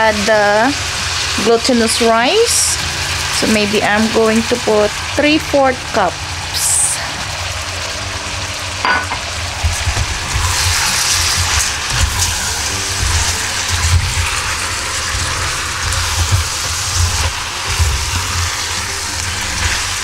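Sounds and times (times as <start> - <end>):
food sizzling in hot oil: 0.0 - 20.0
spatula scraping and knocking pot: 8.9 - 18.5.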